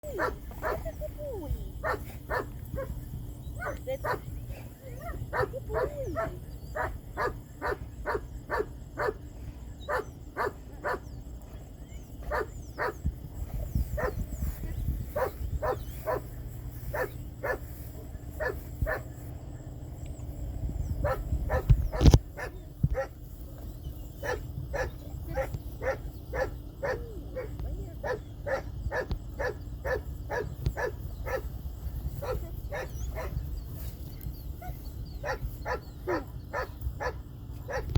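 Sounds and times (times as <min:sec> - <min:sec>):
dog barking: 0:00.0 - 0:00.9, 0:01.8 - 0:02.9, 0:05.2 - 0:09.2, 0:09.9 - 0:11.0, 0:12.3 - 0:13.0, 0:15.2 - 0:16.2, 0:21.0 - 0:23.1, 0:24.2 - 0:31.4, 0:32.2 - 0:33.4, 0:34.6 - 0:37.9.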